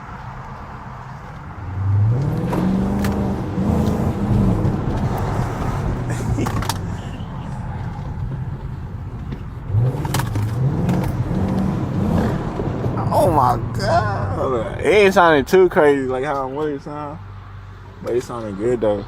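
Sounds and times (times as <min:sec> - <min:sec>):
car engine revving: 0:01.6 - 0:16.3.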